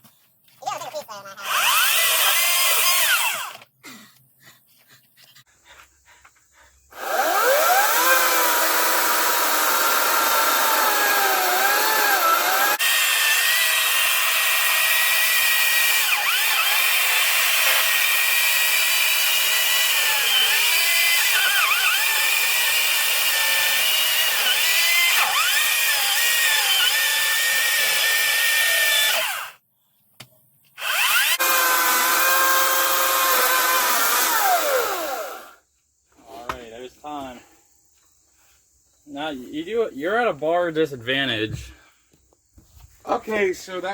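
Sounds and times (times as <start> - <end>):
chainsaw cutting wood: 1.4 - 3.7, 6.9 - 29.6, 30.8 - 35.6.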